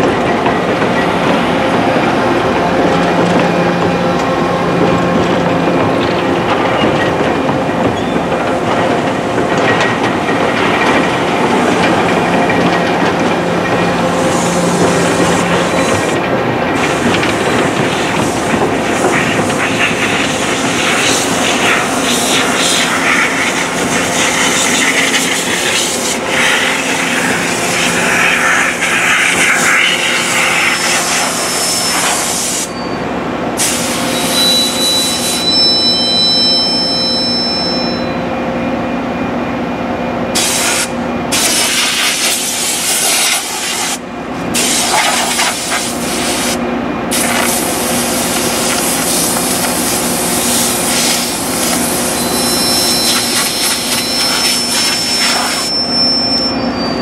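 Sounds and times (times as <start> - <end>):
rail grinder train rushing noise: 0.0 - 57.0
thin high whine: 16.8 - 38.7, 44.6 - 57.0.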